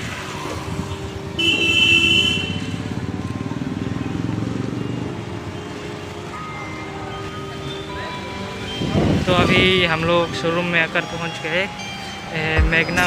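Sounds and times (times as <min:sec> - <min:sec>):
road traffic: 0:00.0 - 0:13.0
vehicle horn: 0:01.4 - 0:02.8.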